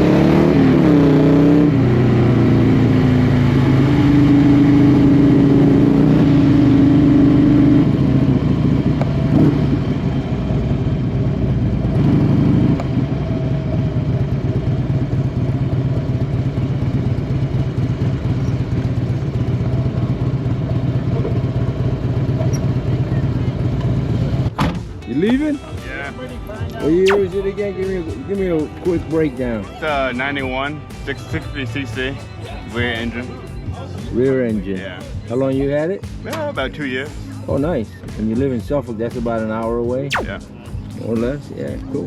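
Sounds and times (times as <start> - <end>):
motorcycle engine running: 0.0 - 24.6.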